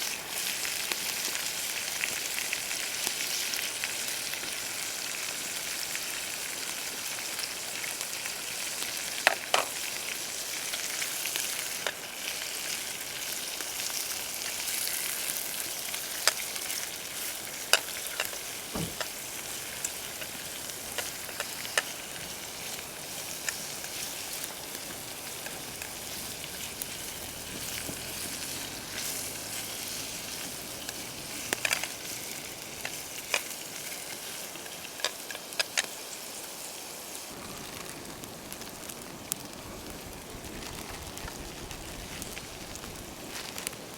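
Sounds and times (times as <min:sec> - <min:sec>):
food sizzling in a pan: 0:00.0 - 0:43.9.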